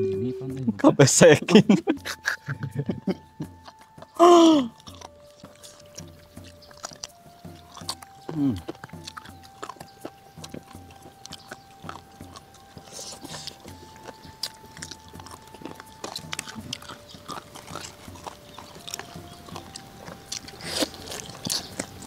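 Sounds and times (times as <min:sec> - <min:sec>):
faint whistle-like tone: 0:00.0 - 0:00.7
wet chewing and smacking: 0:01.8 - 0:22.0.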